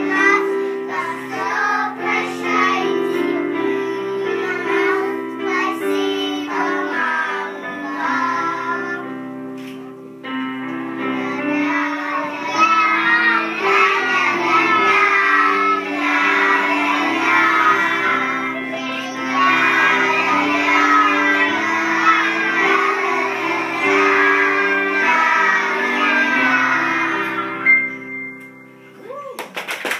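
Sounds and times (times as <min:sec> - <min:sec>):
children singing: 0:00.0 - 0:09.2, 0:11.0 - 0:27.8
instrumental accompaniment: 0:00.0 - 0:29.0.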